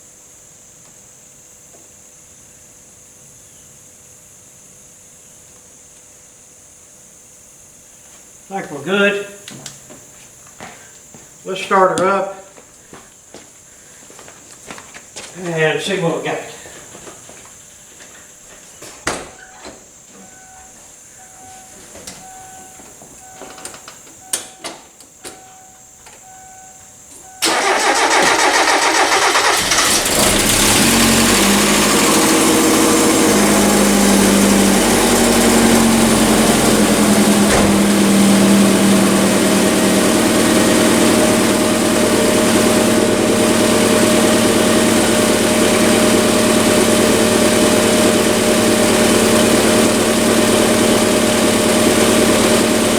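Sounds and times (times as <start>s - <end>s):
car engine starting and idling: 27.4s - 52.9s.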